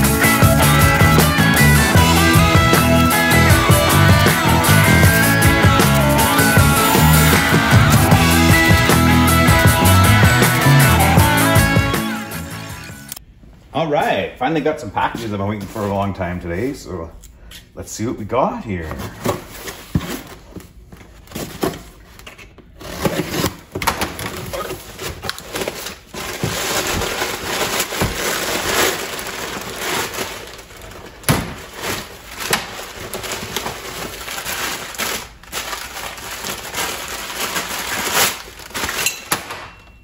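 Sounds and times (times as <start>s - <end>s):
cardboard box being unpacked: 22.8s - 39.0s.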